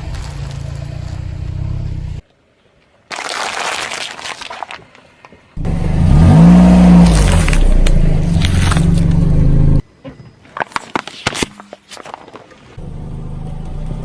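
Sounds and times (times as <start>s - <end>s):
car engine revving: 5.6s - 9.8s.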